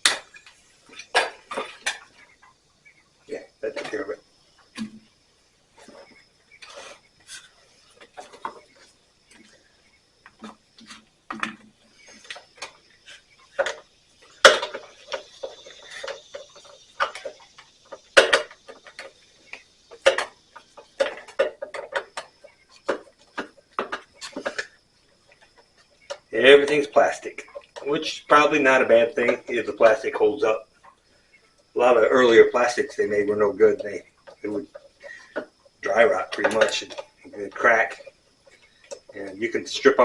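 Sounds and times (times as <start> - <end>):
hand tools clicking and clanking: 10.2 - 24.7, 31.8 - 40.0.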